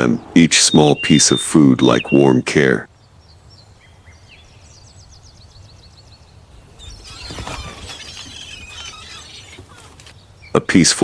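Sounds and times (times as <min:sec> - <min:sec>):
bird trilling and chirping: 0:00.5 - 0:02.4, 0:04.1 - 0:10.5.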